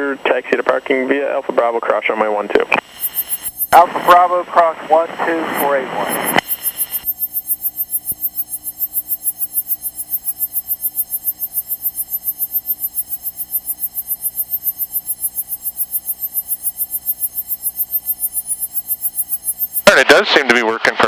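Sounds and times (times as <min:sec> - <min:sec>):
pulsing electrical buzz: 0:02.8 - 0:04.4, 0:05.0 - 0:19.9.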